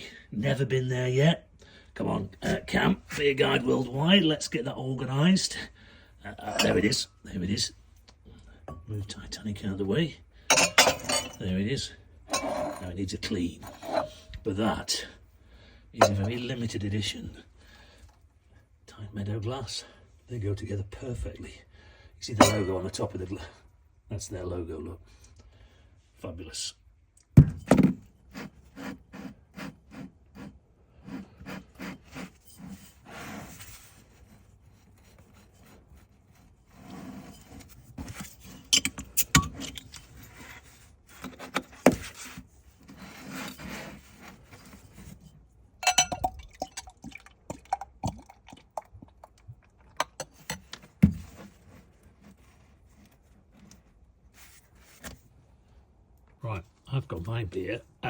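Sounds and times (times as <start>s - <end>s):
glass ringing: 6.5s - 7.0s, 10.5s - 11.4s, 22.4s - 22.7s, 45.8s - 46.9s
rubbing and scraping: 12.3s - 14.8s, 28.2s - 45.6s, 50.2s - 55.4s
bottle and glass clicking: 45.8s - 46.9s.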